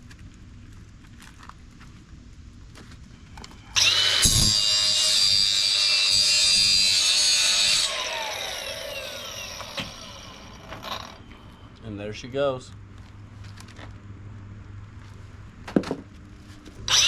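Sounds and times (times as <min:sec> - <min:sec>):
angle grinder cutting metal: 0:03.8 - 0:11.3
grinder spinning down: 0:03.8 - 0:11.3.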